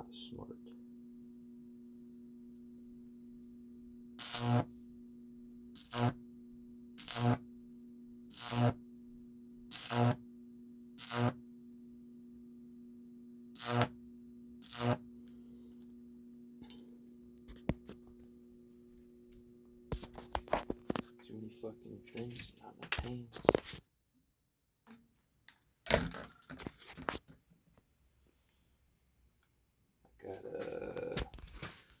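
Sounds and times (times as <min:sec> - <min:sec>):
buzzing crackle of electric arcs: 0:04.1 - 0:04.8, 0:05.7 - 0:06.2, 0:06.9 - 0:07.5, 0:08.3 - 0:08.8, 0:09.6 - 0:10.3, 0:10.9 - 0:11.4, 0:13.5 - 0:14.0, 0:14.6 - 0:15.9.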